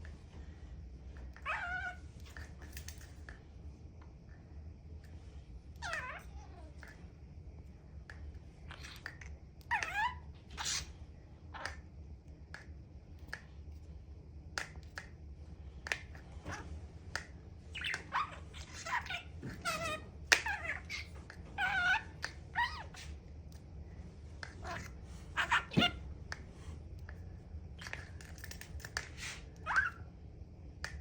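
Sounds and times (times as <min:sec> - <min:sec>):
pet squeaky calls: 0:01.4 - 0:02.0, 0:09.7 - 0:11.0, 0:17.7 - 0:23.2, 0:24.5 - 0:26.0, 0:29.2 - 0:30.1.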